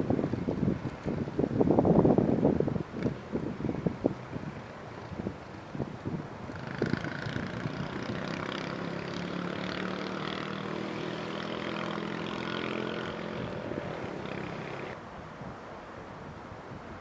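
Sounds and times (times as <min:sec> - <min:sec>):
engine running: 0:06.6 - 0:15.0.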